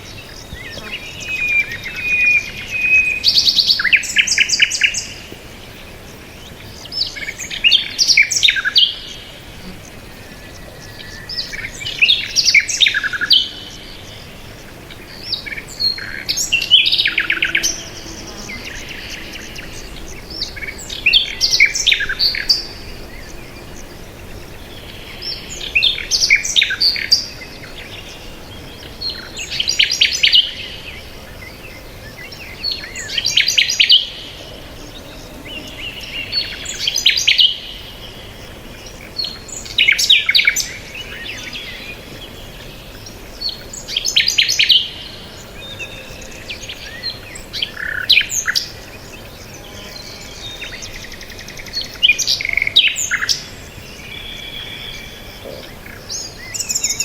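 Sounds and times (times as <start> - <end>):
songbird singing high chirps: 0.0 - 57.0.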